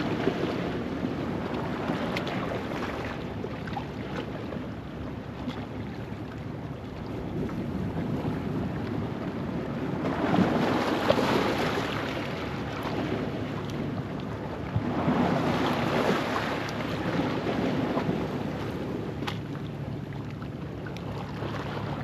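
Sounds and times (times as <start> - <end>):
steady surf wash: 0.0 - 3.3, 7.1 - 19.7
waves surging over rocks: 0.0 - 3.3, 7.4 - 19.9.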